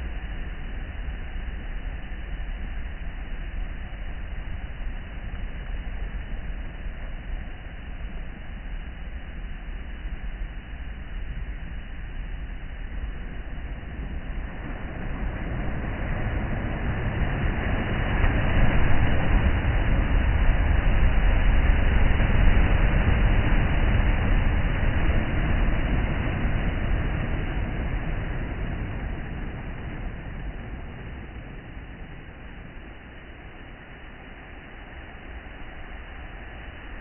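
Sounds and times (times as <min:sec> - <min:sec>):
sea waves breaking on shore: 0:13.2 - 0:37.0.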